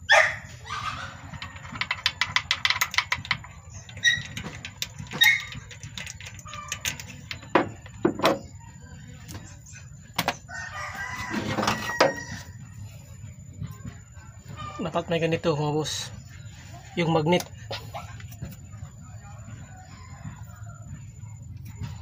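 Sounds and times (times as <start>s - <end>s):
hand tools knocking on engine: 1.3s - 8.4s
rooster crowing: 10.5s - 12.7s, 19.2s - 21.2s.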